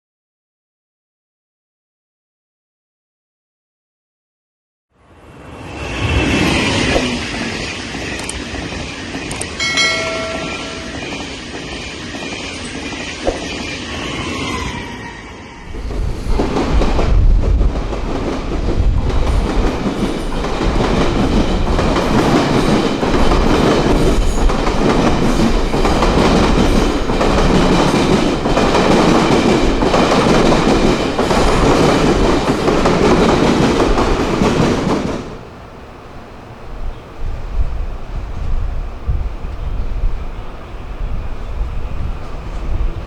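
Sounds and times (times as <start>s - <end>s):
train rumbling past: 5.0s - 43.0s
wheels clacking over rail joints: 15.7s - 37.1s.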